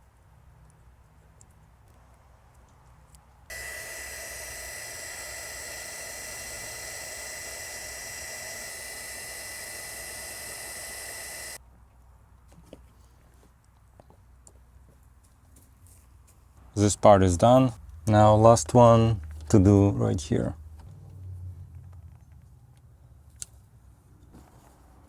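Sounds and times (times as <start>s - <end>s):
heat gun hissing with whine: 3.5s - 11.6s.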